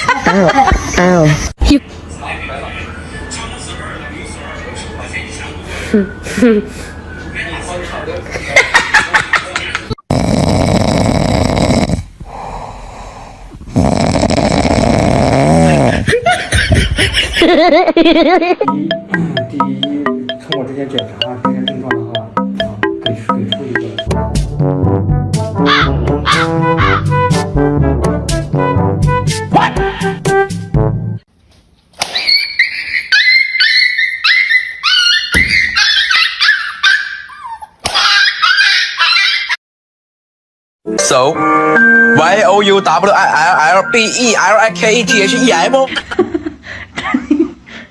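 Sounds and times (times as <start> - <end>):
loud rattling snoring: 10.0 - 16.1
brass music: 22.7 - 31.2, 40.9 - 45.9
dog whining and yipping: 32.1 - 39.6.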